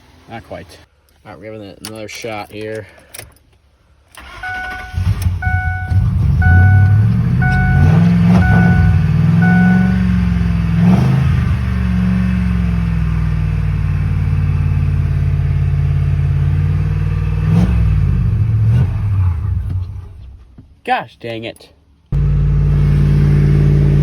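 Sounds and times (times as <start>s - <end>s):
truck engine starting and running: 4.1s - 20.5s, 22.2s - 24.0s
dashboard warning chime: 4.2s - 10.3s.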